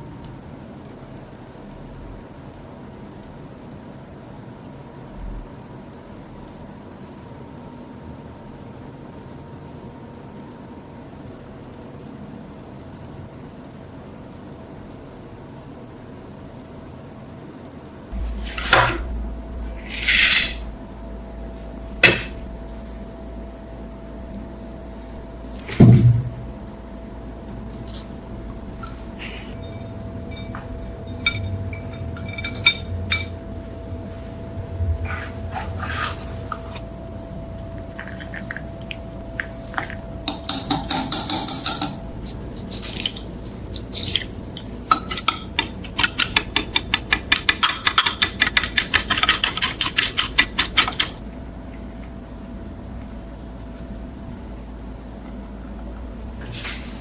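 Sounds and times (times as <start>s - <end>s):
metal tools clinking: 19.8s - 20.7s, 27.7s - 28.2s, 28.8s - 33.4s.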